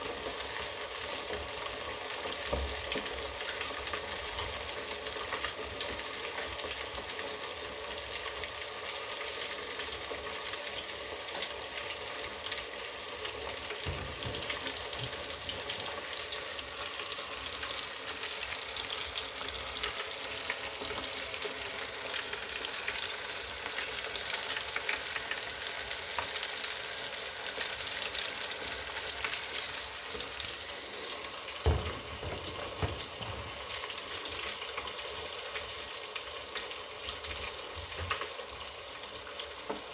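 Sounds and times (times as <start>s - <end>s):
fish sizzling in a pan: 0.0s - 39.9s
brief knocks: 31.6s - 33.6s.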